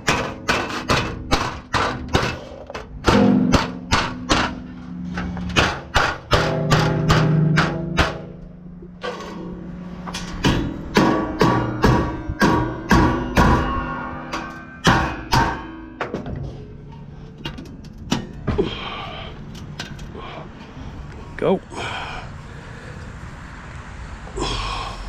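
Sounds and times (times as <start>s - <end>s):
hammer striking steel sheet: 0.0s - 16.3s.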